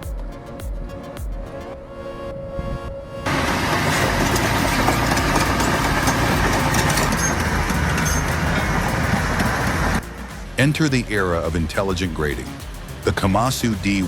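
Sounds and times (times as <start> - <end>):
diesel engine running: 3.2 - 11.6
mechanical clatter: 3.3 - 10.0.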